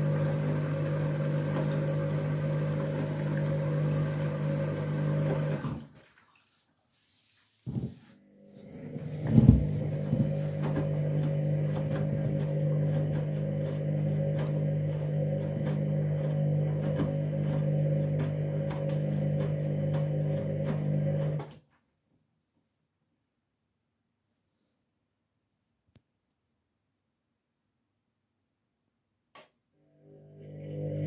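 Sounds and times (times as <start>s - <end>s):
washing machine humming: 0.0s - 6.6s, 8.2s - 21.5s, 29.9s - 31.0s.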